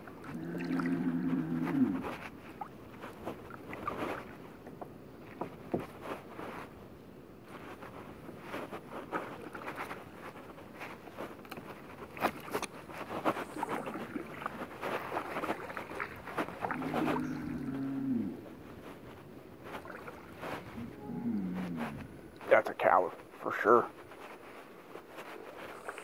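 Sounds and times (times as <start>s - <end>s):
paddle strokes splashing: 0.0s - 6.8s, 7.4s - 26.0s
cow mooing: 0.3s - 2.0s, 16.7s - 18.4s, 20.8s - 22.1s.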